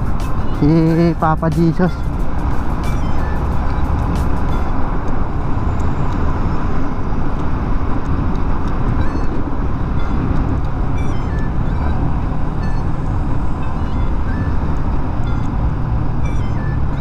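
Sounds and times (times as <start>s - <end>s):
short high beeps: 0.0s - 4.8s, 9.0s - 9.4s, 10.9s - 15.6s, 16.2s - 17.0s
motor traffic rumble: 0.0s - 17.0s.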